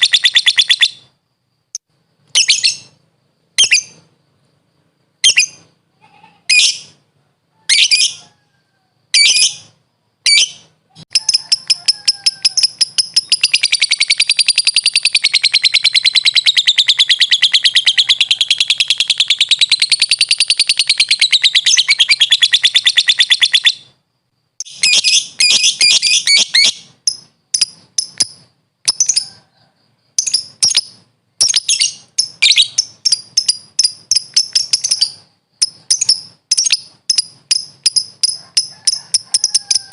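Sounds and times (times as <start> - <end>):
lovebird calling: 0.0 - 1.1, 2.3 - 3.0, 3.6 - 4.1, 9.1 - 24.0, 24.6 - 29.4, 30.2 - 39.9.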